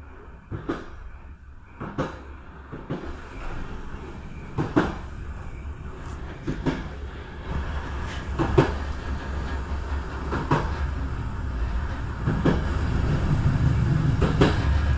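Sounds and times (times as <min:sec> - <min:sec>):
train rumbling: 0:00.0 - 0:14.9
wheels clacking over rail joint: 0:06.0 - 0:14.9.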